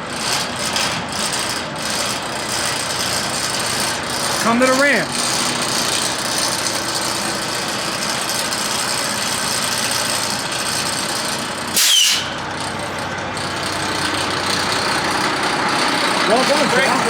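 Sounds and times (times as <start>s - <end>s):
diesel engine running: 0.0s - 17.0s
short high squeal: 11.7s - 12.5s.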